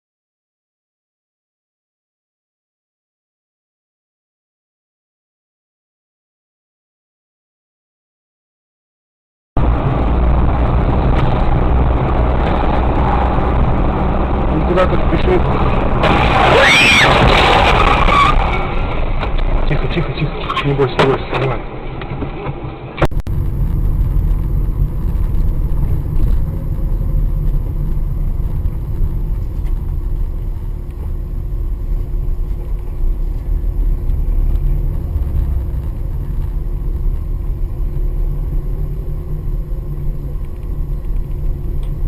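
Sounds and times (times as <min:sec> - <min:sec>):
car engine and road noise: 0:09.6 - 0:42.0.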